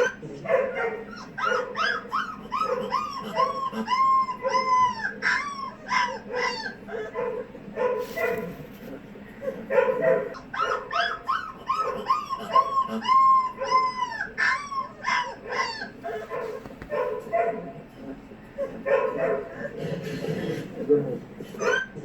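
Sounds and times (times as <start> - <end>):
puppy yelping and whining: 0.0 - 8.6, 9.4 - 17.7, 21.4 - 22.0.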